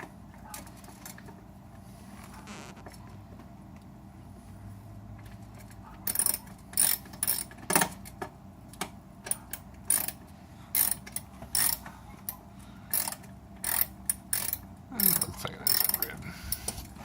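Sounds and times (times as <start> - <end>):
ratchet wrench clicking: 6.1 - 7.8, 9.3 - 11.9, 12.9 - 16.6.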